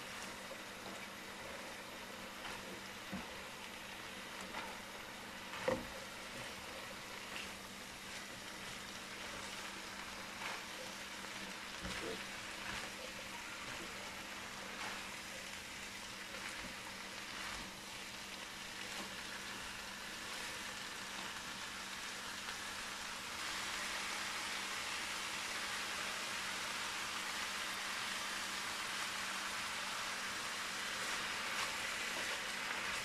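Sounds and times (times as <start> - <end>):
food sizzling in a frying pan: 0.0 - 33.0
spatula scraping a pan: 5.5 - 15.6.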